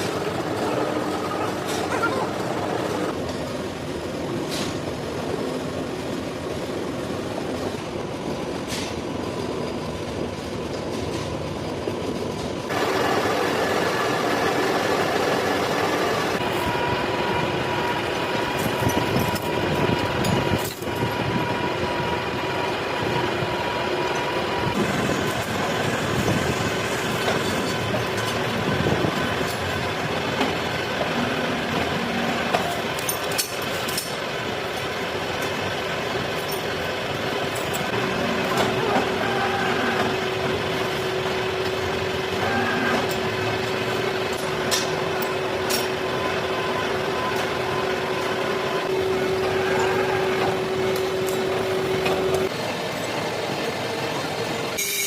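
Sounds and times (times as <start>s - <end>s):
machine tool running: 12.7s - 53.7s.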